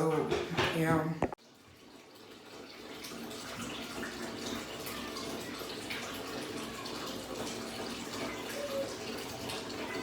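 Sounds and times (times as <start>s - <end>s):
tap water running into basin: 0.0s - 10.0s
water splashing: 2.2s - 10.0s.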